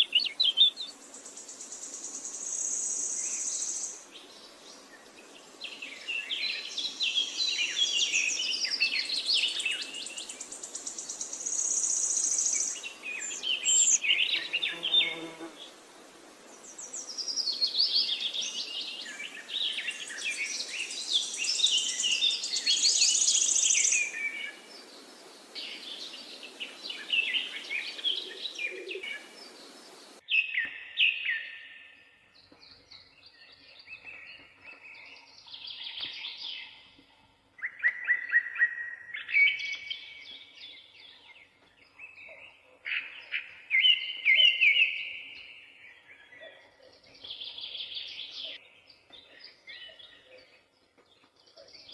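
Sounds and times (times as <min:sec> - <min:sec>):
background hiss: 0:00.0 - 0:30.3.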